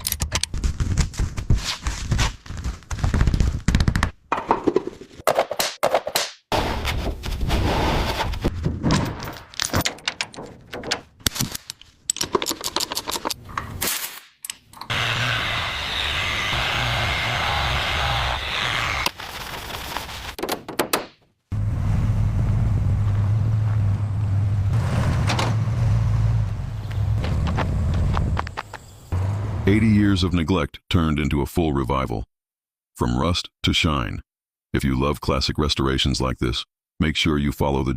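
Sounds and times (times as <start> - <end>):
mechanical knocks and clatters: 8.6 - 11.2.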